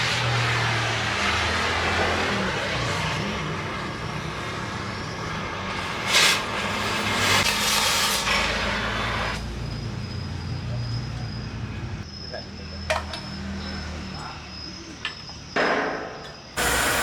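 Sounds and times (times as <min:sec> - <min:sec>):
engine running: 0:16.6 - 0:17.0
steady hiss: 0:16.6 - 0:17.0.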